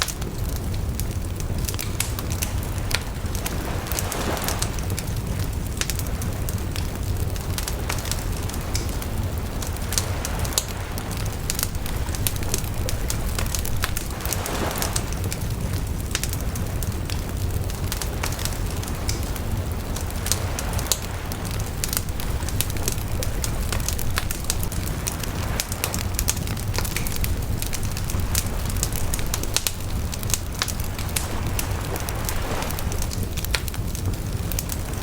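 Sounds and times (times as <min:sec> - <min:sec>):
bonfire crackling and popping: 0:00.0 - 0:35.0
flames rushing: 0:00.0 - 0:35.0.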